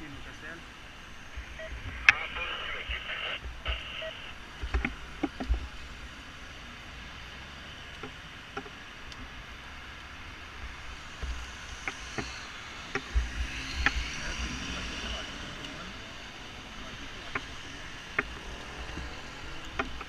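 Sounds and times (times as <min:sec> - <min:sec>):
street traffic noise: 0:00.0 - 0:20.0.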